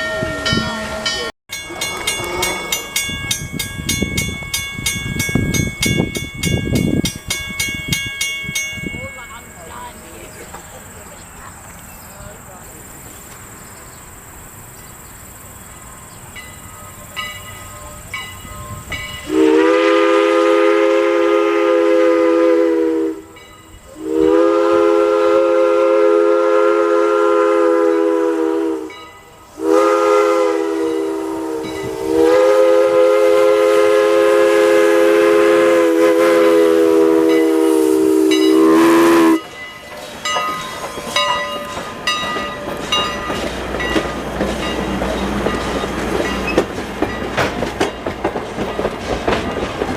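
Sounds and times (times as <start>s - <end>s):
steam locomotive whistle blasts: 0.0s - 3.5s, 16.7s - 39.6s
train on rails: 0.0s - 49.9s.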